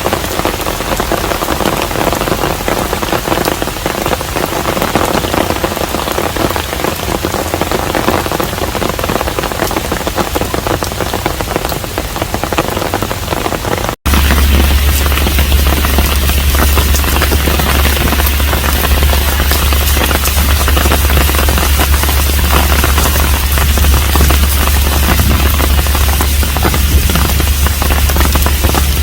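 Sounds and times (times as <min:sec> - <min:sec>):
rain pattering: 0:00.0 - 0:29.0
deep steady rumble: 0:12.3 - 0:29.0.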